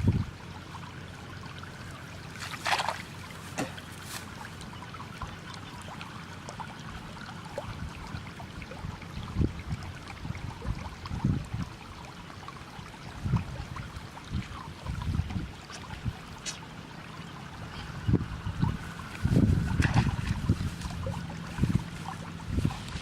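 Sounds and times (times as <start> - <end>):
water trickling: 0.0 - 23.0
water splash: 2.3 - 6.6, 18.6 - 23.0.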